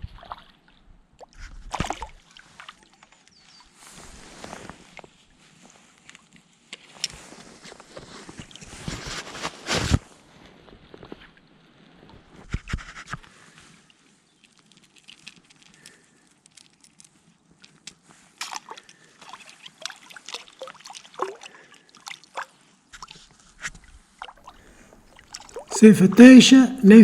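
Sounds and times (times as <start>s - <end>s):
water sloshing and dripping: 18.5s - 23.3s, 24.2s - 25.7s.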